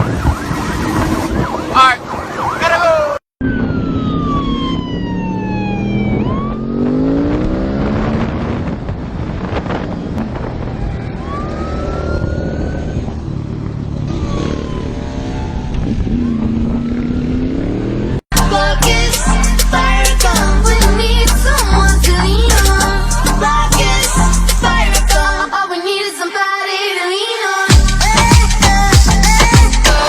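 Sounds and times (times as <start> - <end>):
motorcycle engines revving: 3.5 - 18.2.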